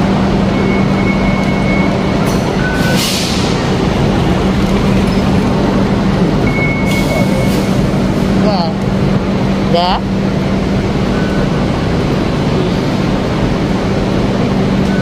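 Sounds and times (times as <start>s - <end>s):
large vehicle running hum: 0.0s - 15.0s
short electronic beeps: 0.5s - 3.0s, 6.4s - 7.7s.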